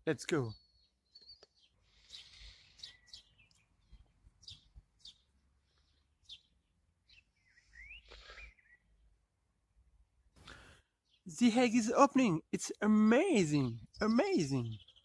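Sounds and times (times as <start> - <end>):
faint bird chirps: 0.3 - 9.2, 13.7 - 15.0
rising bird call: 7.1 - 8.8.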